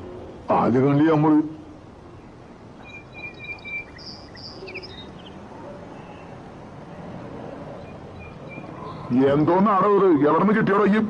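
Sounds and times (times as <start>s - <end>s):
outdoor background ambience: 0.0s - 11.0s
high bird chirps: 2.8s - 5.4s.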